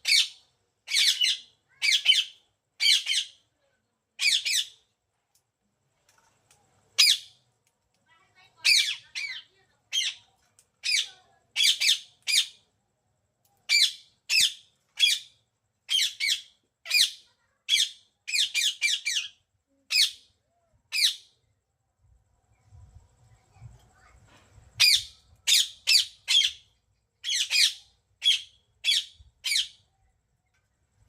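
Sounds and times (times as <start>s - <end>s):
parrot squawking: 0.0s - 3.3s.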